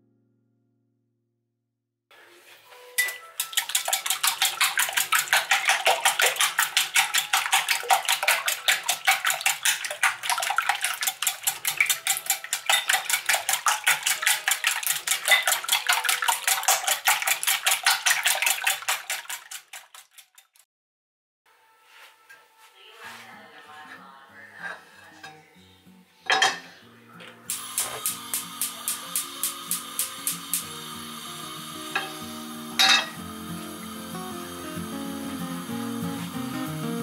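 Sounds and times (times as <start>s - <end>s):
whisk beating eggs in bowl: 3.3s - 20.5s, 27.7s - 32.4s.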